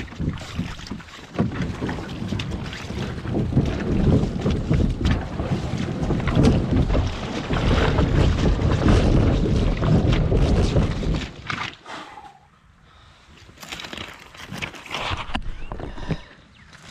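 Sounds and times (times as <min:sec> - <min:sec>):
wind rumble on microphone: 0:00.0 - 0:11.6, 0:14.5 - 0:16.9
kayak hull scraping over rocks: 0:00.0 - 0:11.9, 0:13.4 - 0:16.9
rushing shallow water: 0:00.0 - 0:12.5.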